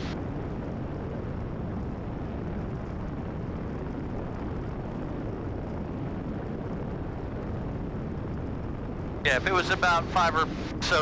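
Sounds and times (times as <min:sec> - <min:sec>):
airplane engine and propeller drone: 0:00.0 - 0:11.0.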